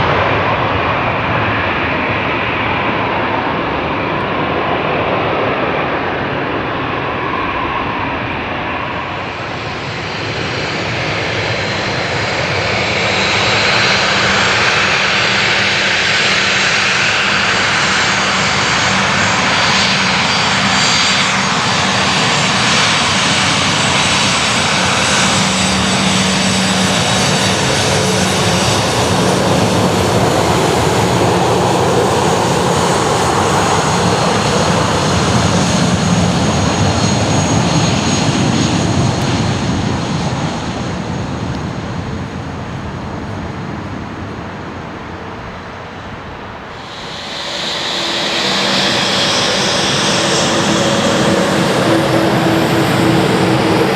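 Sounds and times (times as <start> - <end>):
high engine whine: 0.0 - 53.9
jet engines roaring: 0.0 - 53.9.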